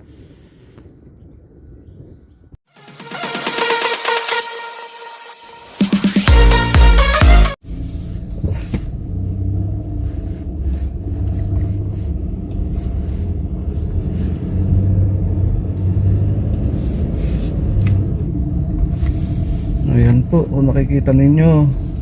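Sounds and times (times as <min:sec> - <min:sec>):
burst of electronic music: 0:02.7 - 0:07.6
motor vehicle rumbling: 0:07.6 - 0:22.0.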